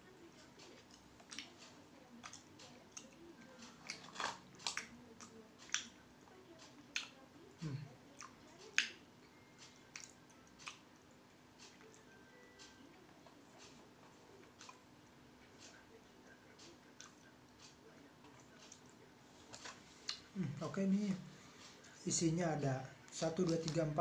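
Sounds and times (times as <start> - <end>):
person chewing crunchy chocolate: 2.2 - 6.0.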